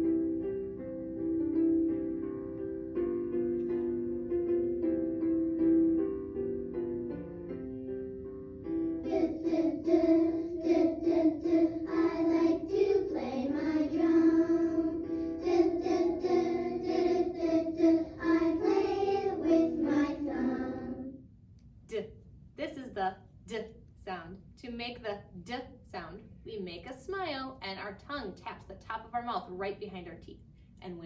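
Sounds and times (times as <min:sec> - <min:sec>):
child singing: 0:09.1 - 0:21.1.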